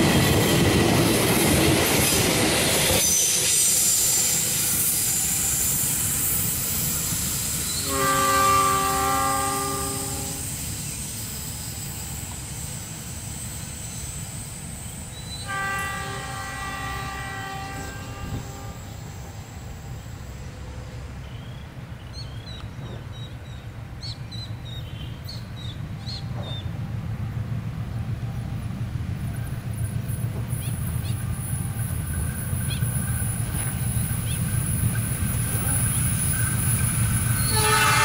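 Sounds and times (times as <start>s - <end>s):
train coaches rushing past: 0.0s - 38.0s
locomotive horn blasts: 7.8s - 10.5s, 15.4s - 19.0s, 37.4s - 38.0s.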